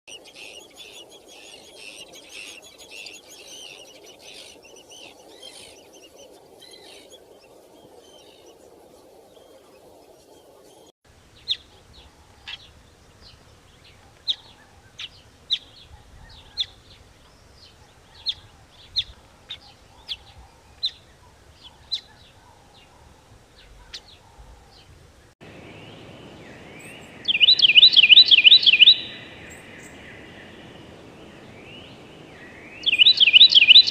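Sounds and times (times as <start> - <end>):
small birds chirping: 0.1 - 33.9
rapid trilled bird call: 25.5 - 33.9.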